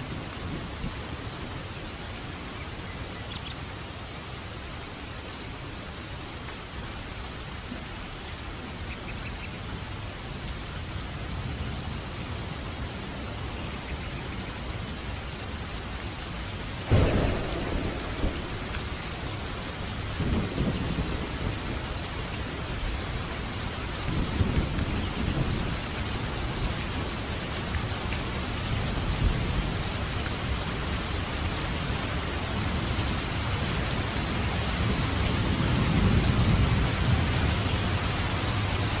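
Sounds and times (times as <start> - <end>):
heavy rain on a roof: 0.0 - 39.0
thunder rolling: 16.9 - 22.0
thunderclap: 16.9 - 22.0.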